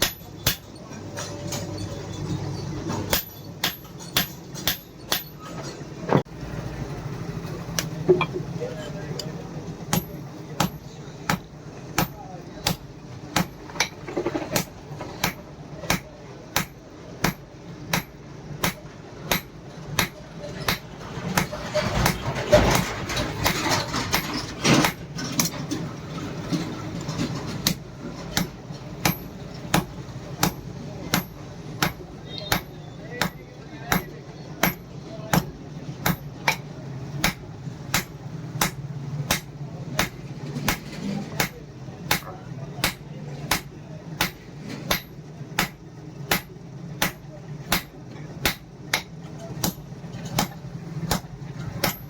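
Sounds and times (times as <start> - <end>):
hammer striking steel on anvil: 0.0 - 0.8, 3.1 - 5.6, 9.9 - 14.0, 14.6 - 20.8, 28.4 - 36.6, 37.2 - 52.0.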